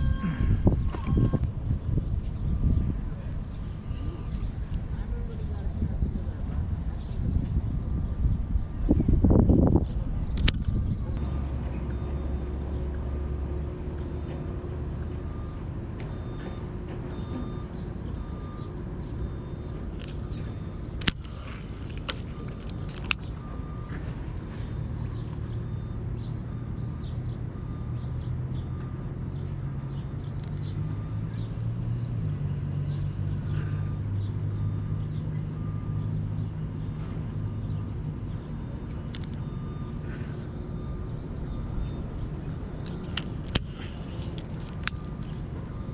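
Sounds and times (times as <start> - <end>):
motor humming: 0.0 - 5.0, 39.3 - 45.9
sharp clicks: 10.3 - 11.2, 19.6 - 24.6, 42.8 - 45.9.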